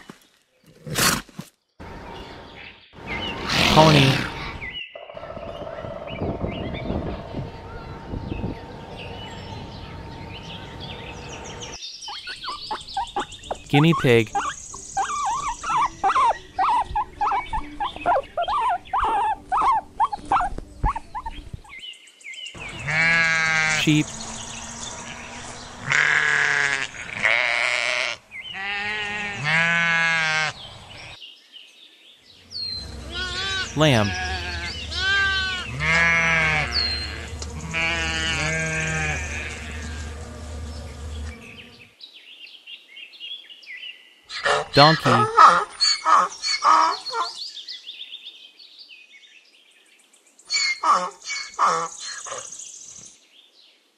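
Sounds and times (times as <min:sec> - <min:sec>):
low steady hum: 0:07.2 - 0:11.8, 0:32.5 - 0:41.9
guinea pig squeaking: 0:12.1 - 0:21.4
lambs bleating: 0:22.8 - 0:23.9, 0:25.0 - 0:30.5, 0:33.1 - 0:40.2.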